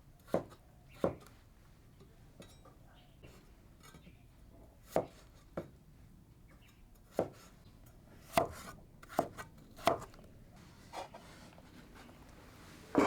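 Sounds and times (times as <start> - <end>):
knife chopping on cutting board: 7.1 - 7.5, 8.3 - 10.1.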